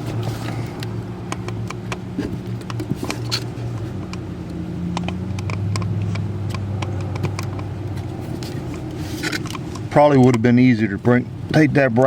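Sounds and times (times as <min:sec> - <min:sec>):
low mechanical hum: 0:00.0 - 0:12.0
clicks and taps of parts: 0:00.4 - 0:10.5.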